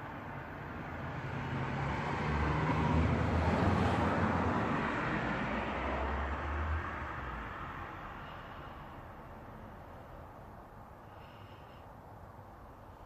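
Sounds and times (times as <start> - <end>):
motor vehicle passing: 0.0 - 11.8.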